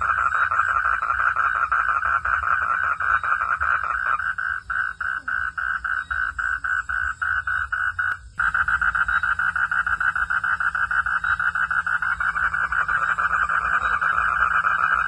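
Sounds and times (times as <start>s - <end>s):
frogs calling in pulsed trill: 0.0s - 15.0s
low hum: 6.8s - 15.0s.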